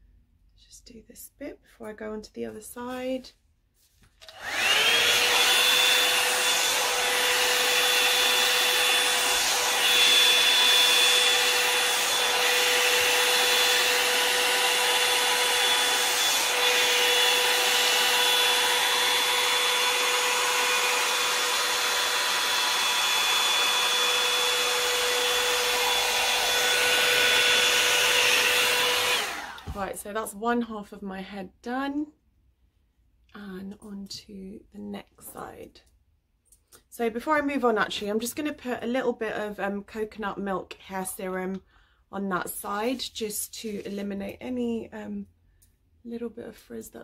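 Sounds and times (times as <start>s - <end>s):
hair dryer motor whining: 4.2s - 30.0s.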